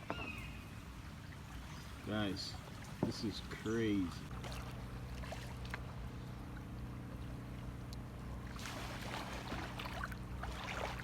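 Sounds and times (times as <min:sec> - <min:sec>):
steady low hum: 0:00.5 - 0:11.0
kayak paddle splashing water: 0:04.2 - 0:05.9, 0:08.4 - 0:11.0.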